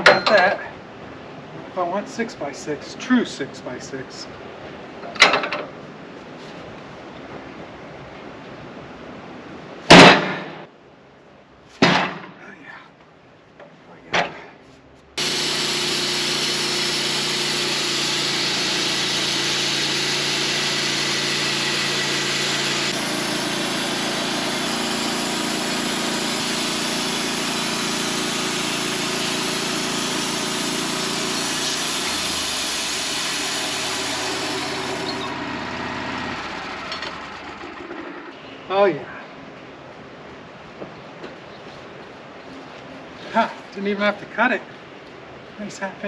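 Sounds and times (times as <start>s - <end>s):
sawmill blade cutting log: 15.2s - 38.2s.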